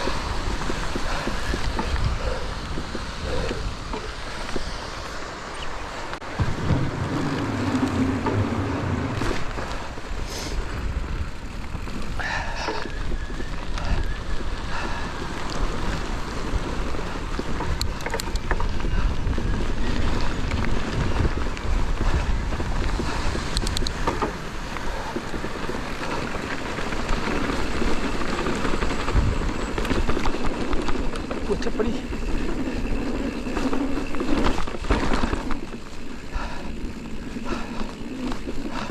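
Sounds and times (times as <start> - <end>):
mountain bike rumble and rattle: 0.0 - 38.9
wind buffeting microphone: 0.0 - 38.9.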